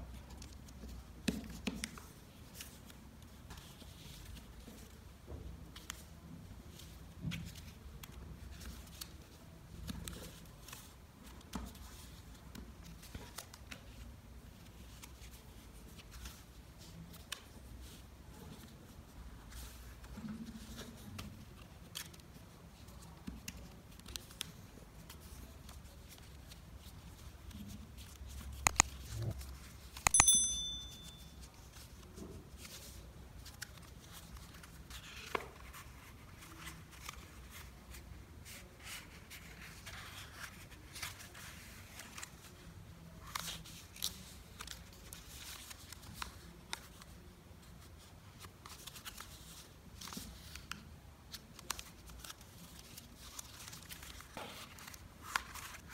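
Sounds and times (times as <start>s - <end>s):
paper rustling and folding: 0.1s - 30.1s, 31.1s - 55.9s
high ping: 30.1s - 31.4s.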